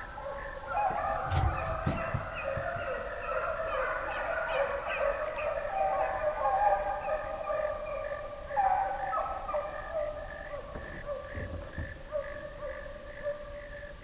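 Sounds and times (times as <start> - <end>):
hounds baying: 0.0 - 14.0
low bump: 0.9 - 3.1.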